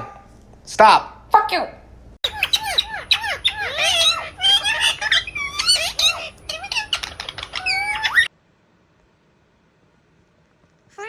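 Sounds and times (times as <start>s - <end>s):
parrot squawking and chattering: 2.2s - 8.3s.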